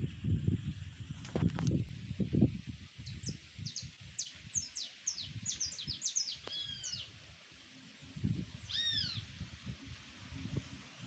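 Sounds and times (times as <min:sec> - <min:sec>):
songbirds singing: 0:03.0 - 0:07.2, 0:08.5 - 0:09.3.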